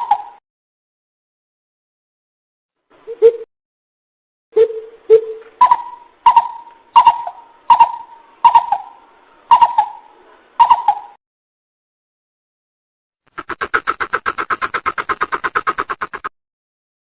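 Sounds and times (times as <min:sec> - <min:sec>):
bird deep hoots: 0:04.6 - 0:11.2.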